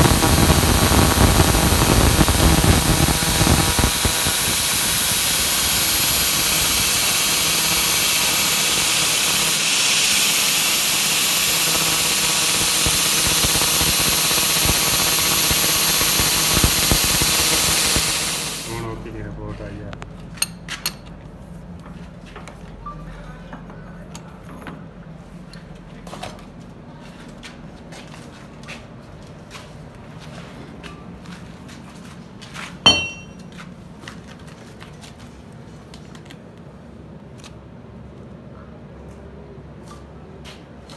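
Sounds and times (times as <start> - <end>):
hissing machine noise: 0.0 - 19.0, 32.9 - 33.4.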